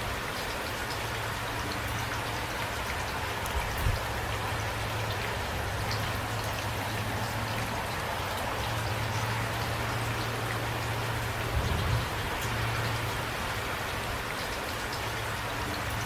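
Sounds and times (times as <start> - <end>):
raindrops ticking: 0.0 - 16.0
steady rain falling: 0.0 - 16.0.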